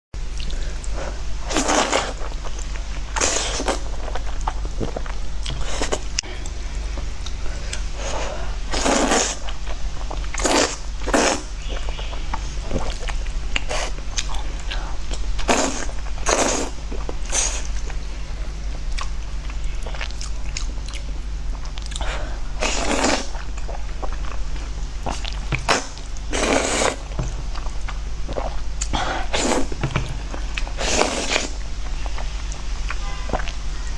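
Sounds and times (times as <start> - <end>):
steady low hum: 0.2 - 33.9.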